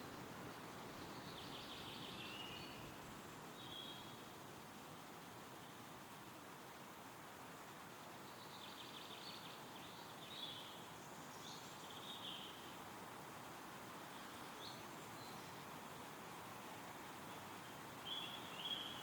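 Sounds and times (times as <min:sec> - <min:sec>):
wind rustling through trees: 0:00.0 - 0:19.0.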